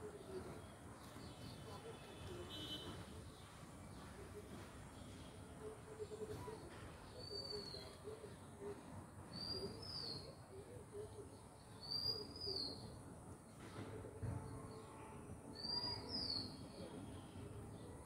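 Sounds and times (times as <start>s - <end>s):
low background chatter: 0.0s - 18.0s.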